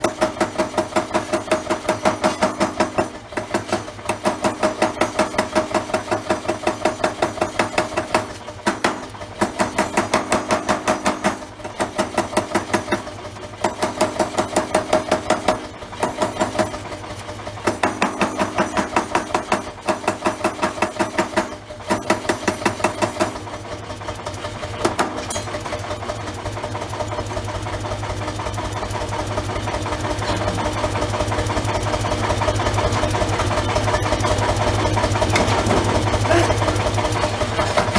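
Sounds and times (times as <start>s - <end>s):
forging hammer striking steel: 0.0s - 16.8s, 17.6s - 23.4s, 24.8s - 25.8s, 32.7s - 37.9s
steady machine hum: 27.9s - 37.9s.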